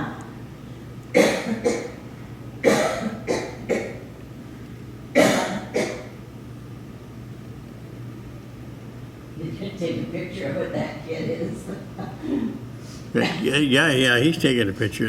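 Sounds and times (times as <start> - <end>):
person coughing: 1.2 - 2.0, 2.6 - 4.0, 5.2 - 6.2.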